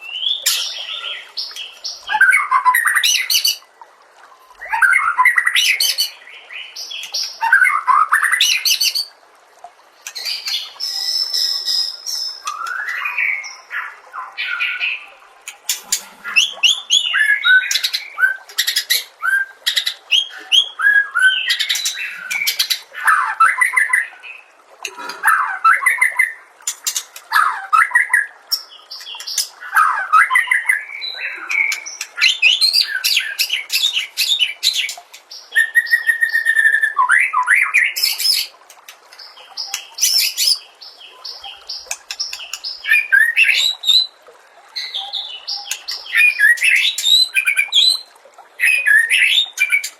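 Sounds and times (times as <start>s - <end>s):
songbird singing: 10.0s - 38.5s, 39.1s - 49.9s.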